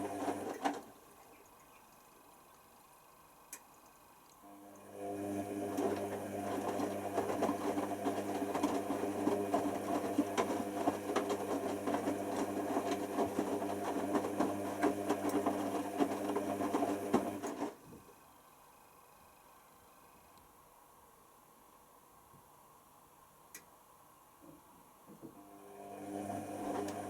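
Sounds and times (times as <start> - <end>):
washer dryer motor hum: 0.0 - 1.4, 4.4 - 18.3, 25.1 - 27.0.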